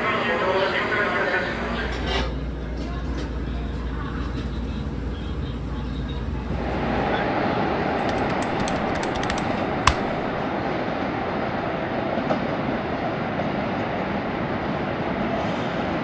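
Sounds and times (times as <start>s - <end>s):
sharp click: 8.0s - 10.5s.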